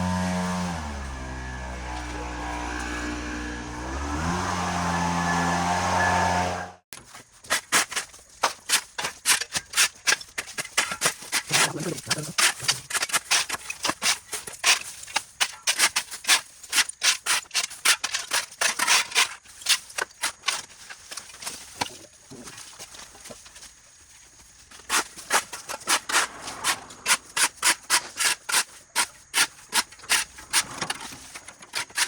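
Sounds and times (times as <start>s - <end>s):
motor cutting off: 0.0s - 6.8s
sharp scratchy strokes: 24.8s - 32.0s.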